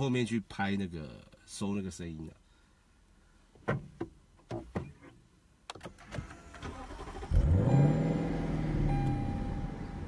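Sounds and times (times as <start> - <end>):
car engine starting and idling: 5.7 - 10.0.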